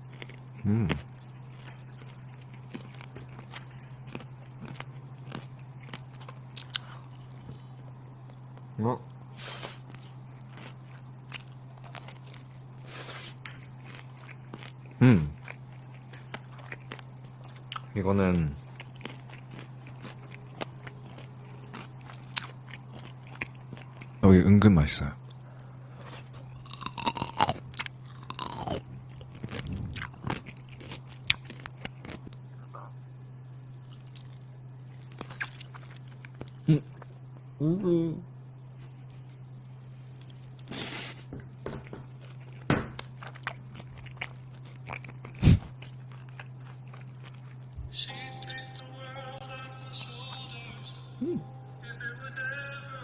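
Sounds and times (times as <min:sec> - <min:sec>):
person chewing crunchy food: 0:00.0 - 0:24.2, 0:25.2 - 0:33.0, 0:33.6 - 0:37.5, 0:38.9 - 0:48.4
low hum: 0:25.1 - 0:53.0.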